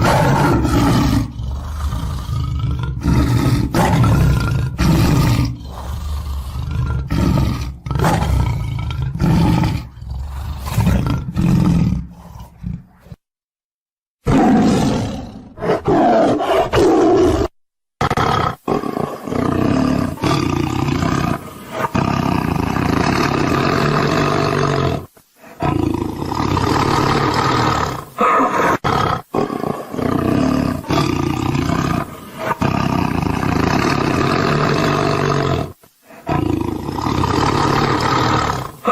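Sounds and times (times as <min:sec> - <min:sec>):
lions and tigers roaring: 0:00.0 - 0:13.2, 0:14.3 - 0:38.9.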